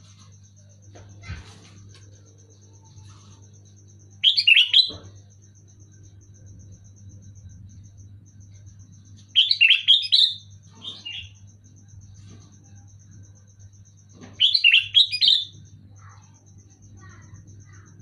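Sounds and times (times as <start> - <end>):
bird singing bubbly phrases: 4.2 - 5.0
soft bird call: 4.2 - 5.1, 14.2 - 15.6.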